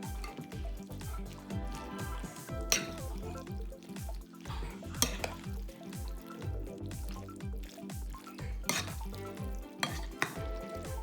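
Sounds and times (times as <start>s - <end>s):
background music: 0.0s - 11.0s
spoon stirring in a bowl: 0.0s - 11.0s
spoon clinking on bowl: 9.8s - 10.4s.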